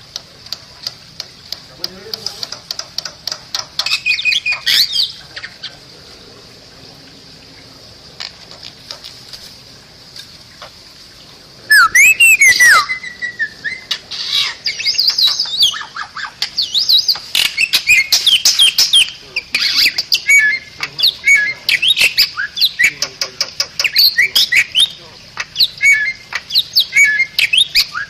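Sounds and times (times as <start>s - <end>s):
myna calls and whistles: 11.7s - 28.0s.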